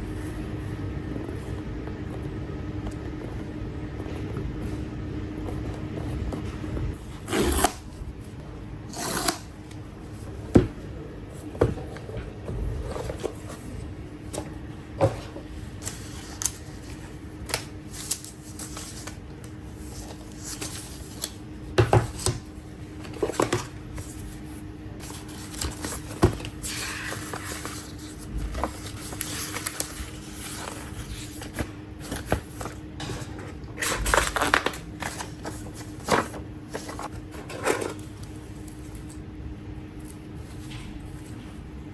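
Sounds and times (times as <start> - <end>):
steady low hum: 0.0 - 41.9
packaging rustling and scraping: 22.0 - 39.2.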